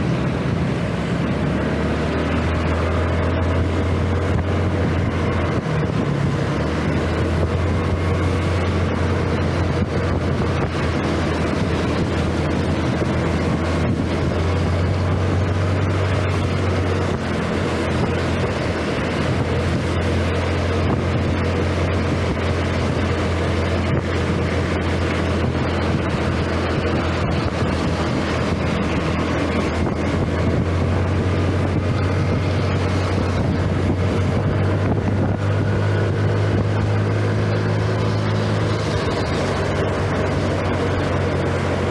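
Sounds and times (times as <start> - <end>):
scooter engine humming: 0.0 - 41.9
wind buffeting microphone: 0.0 - 41.9.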